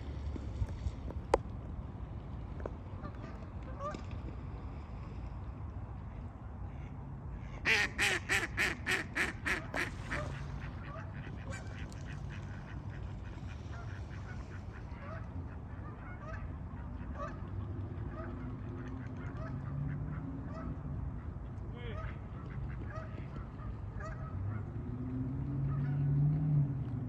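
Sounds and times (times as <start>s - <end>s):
geese honking: 7.7s - 15.2s.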